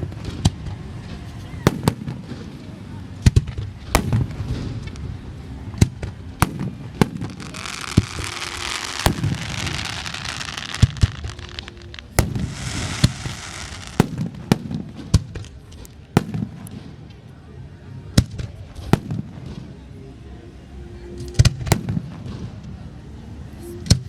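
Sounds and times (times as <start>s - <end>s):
fireworks booming bursts: 0.0s - 17.2s
crackling hiss of fireworks: 0.0s - 20.2s, 21.0s - 24.0s.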